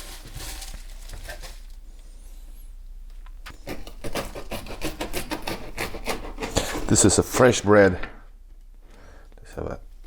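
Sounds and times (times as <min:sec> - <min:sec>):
plastic bag rustling and scraping: 0:00.0 - 0:02.8.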